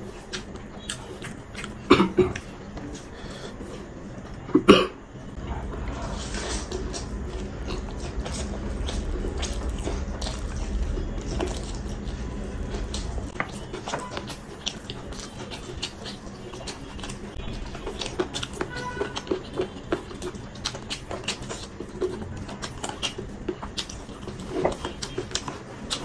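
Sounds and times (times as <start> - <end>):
person chewing food: 0.0 - 3.9, 5.4 - 26.0.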